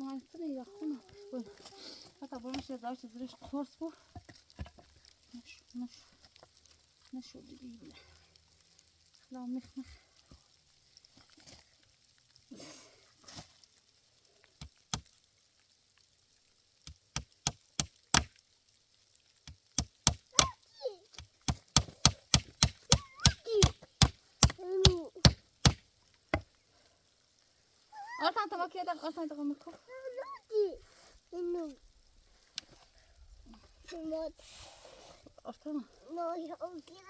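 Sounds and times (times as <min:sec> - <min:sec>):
sharp blows on wood: 0:19.8 - 0:20.6, 0:21.4 - 0:26.4.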